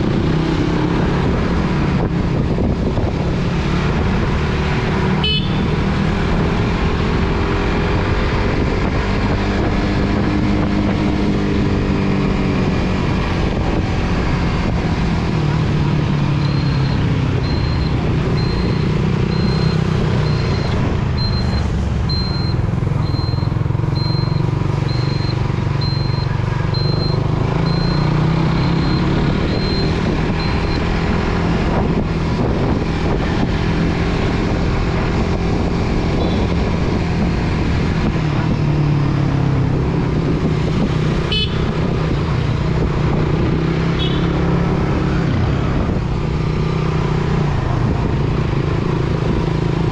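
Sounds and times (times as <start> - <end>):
motorcycle engine running: 5.1 - 49.9
high-pitched beep: 16.4 - 31.0.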